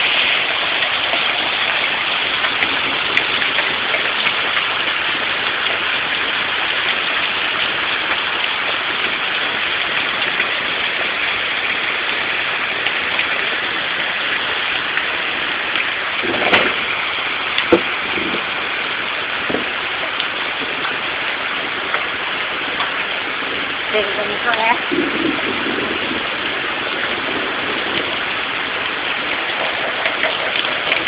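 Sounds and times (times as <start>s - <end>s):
hail and rain falling hard: 0.0s - 31.0s
loud knocks: 16.2s - 16.9s, 17.6s - 18.0s.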